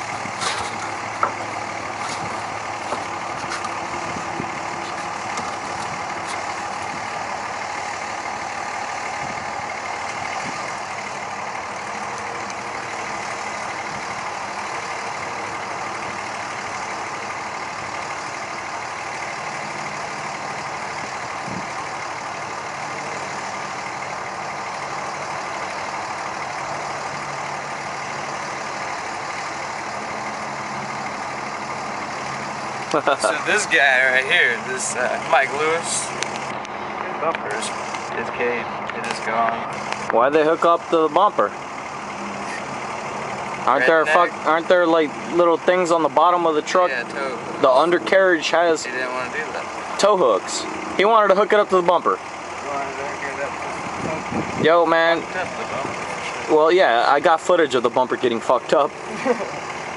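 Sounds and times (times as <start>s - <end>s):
truck engine idling: 0.0s - 59.9s
sharp clicks: 36.1s - 38.1s.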